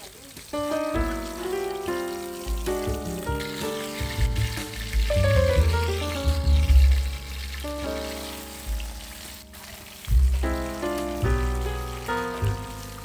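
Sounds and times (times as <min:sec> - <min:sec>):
food sizzling in hot oil: 0:00.0 - 0:13.0
background music with bass line: 0:02.4 - 0:09.5, 0:10.1 - 0:13.0.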